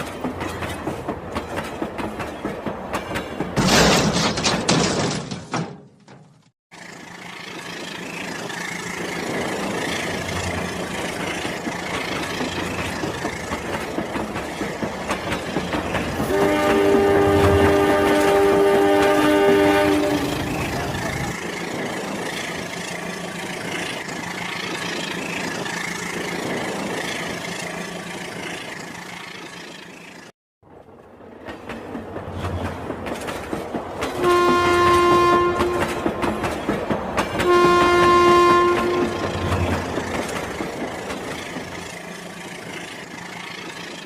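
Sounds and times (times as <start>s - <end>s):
electronic train horn: 16.2s - 20.6s, 34.2s - 36.1s, 37.4s - 39.6s.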